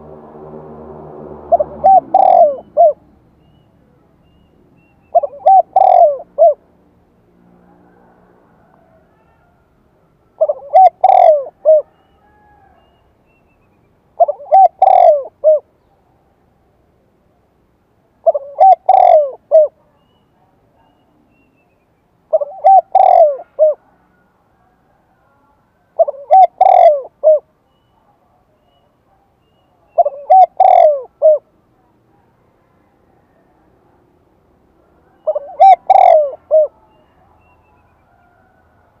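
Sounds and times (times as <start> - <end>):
dove cooing: 1.5 - 3.0, 5.1 - 6.7, 10.4 - 12.9, 14.2 - 15.7, 18.2 - 19.8, 22.3 - 24.2, 25.8 - 27.5, 29.9 - 31.6, 35.1 - 37.1.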